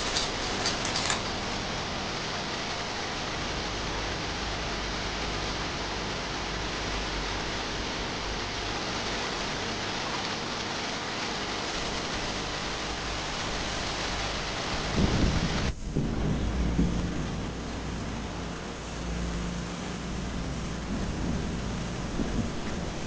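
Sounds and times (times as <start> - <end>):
steady rushing hiss: 0.0 - 23.0
heavy low buffeting: 13.1 - 23.0.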